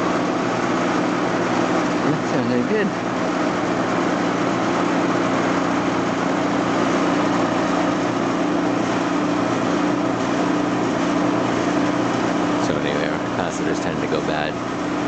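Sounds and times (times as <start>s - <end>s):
compressor humming: 0.0s - 15.0s
condenser fan rushing: 0.0s - 15.0s.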